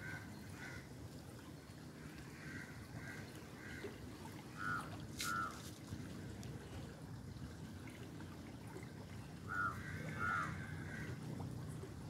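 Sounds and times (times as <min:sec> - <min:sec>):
river water rushing: 0:00.0 - 0:12.0
bird calling: 0:04.6 - 0:05.6, 0:09.4 - 0:11.2.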